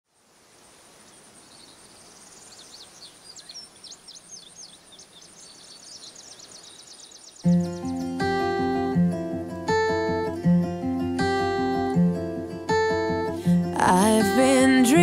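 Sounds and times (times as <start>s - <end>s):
steady high hiss: 0.1s - 15.0s
birds singing: 1.0s - 10.5s.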